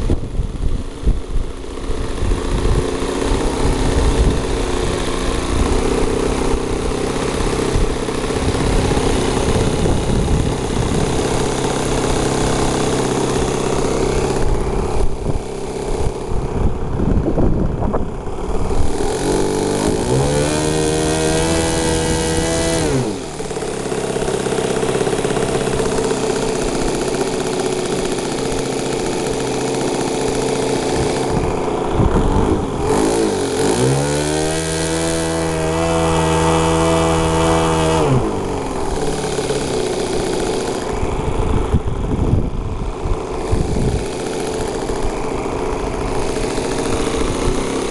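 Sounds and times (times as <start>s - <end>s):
model plane engine running: 0.0s - 47.9s.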